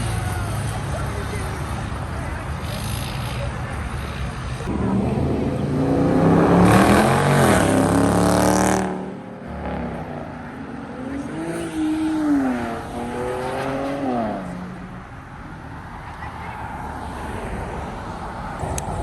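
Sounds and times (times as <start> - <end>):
quieter engine revving: 4.6 - 14.8
car engine revving hard: 4.7 - 10.3.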